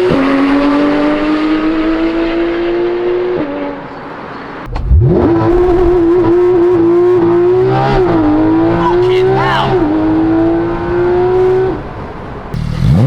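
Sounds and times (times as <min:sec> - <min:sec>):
sports car engine accelerating: 0:00.0 - 0:03.9, 0:04.5 - 0:11.9, 0:12.5 - 0:13.0
exhaust crack: 0:04.6 - 0:08.3, 0:12.5 - 0:13.0.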